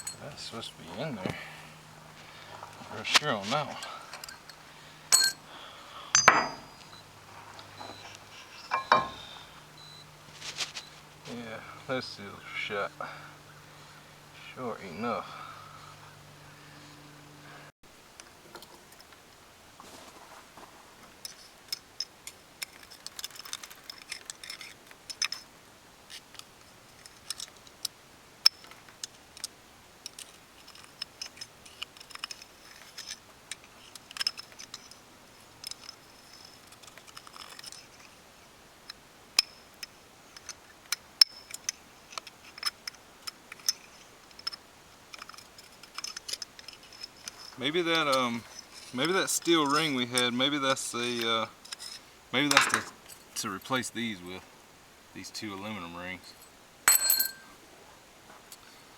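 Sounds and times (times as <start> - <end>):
metal parts clicking and clinking: 0.0 - 0.3, 3.0 - 5.4, 6.1 - 7.0, 7.7 - 9.3, 21.2 - 25.5, 26.1 - 27.8, 28.4 - 38.2, 38.9 - 50.3, 56.3 - 57.5.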